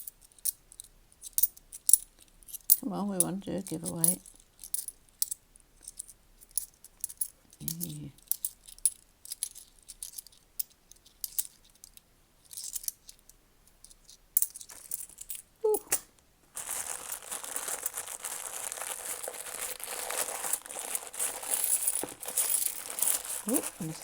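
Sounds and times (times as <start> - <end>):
coins clicking together: 3.6 - 13.2, 21.2 - 23.9
plastic bag crinkling: 16.5 - 24.0.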